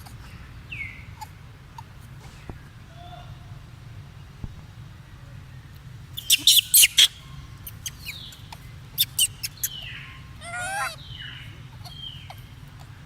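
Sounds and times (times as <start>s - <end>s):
monkey squeaking: 6.2s - 8.4s, 9.0s - 11.0s.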